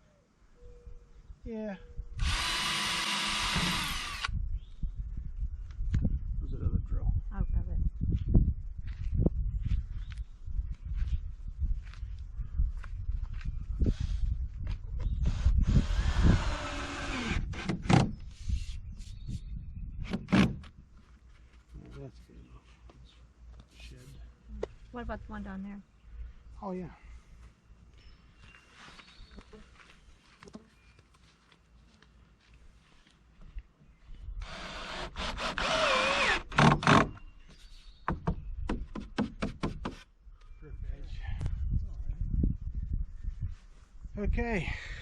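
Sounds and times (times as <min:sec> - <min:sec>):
cordless drill driving screw: 0:02.2 - 0:04.3, 0:15.2 - 0:18.1, 0:34.4 - 0:37.2.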